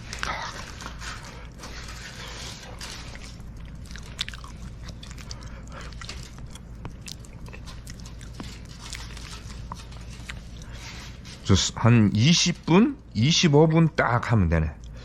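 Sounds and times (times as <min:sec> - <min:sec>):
person chewing: 0:00.0 - 0:11.4
wood fire crackling: 0:00.0 - 0:14.2.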